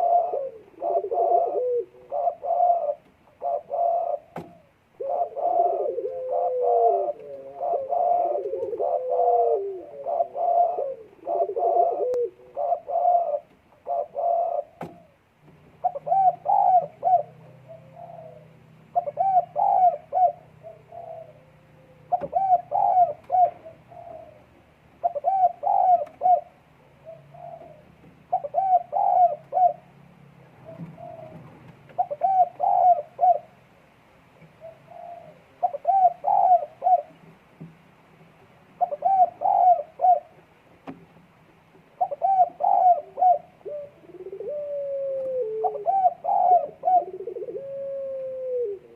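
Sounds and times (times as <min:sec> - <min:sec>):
dove cooing: 0:00.0 - 0:33.6, 0:34.4 - 0:37.3, 0:38.8 - 0:40.5, 0:41.9 - 0:48.9.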